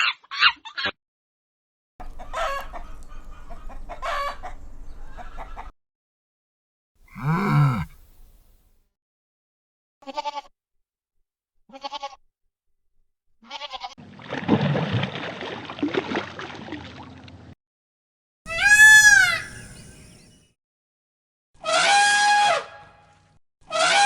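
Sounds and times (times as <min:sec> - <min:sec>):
animal bleating: 0:07.1 - 0:08.2, 0:10.0 - 0:10.5, 0:11.7 - 0:12.2, 0:13.4 - 0:14.0, 0:18.5 - 0:19.6
loud high animal call: 0:07.1 - 0:08.2, 0:18.5 - 0:20.2.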